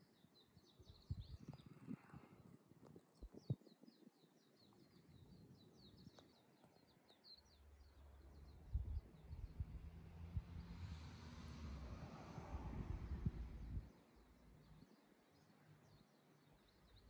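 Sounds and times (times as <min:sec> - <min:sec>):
songbird chirping: 0:00.0 - 0:10.9, 0:13.6 - 0:17.0
wind buffeting microphone: 0:00.8 - 0:04.1, 0:08.4 - 0:10.9, 0:11.7 - 0:14.0.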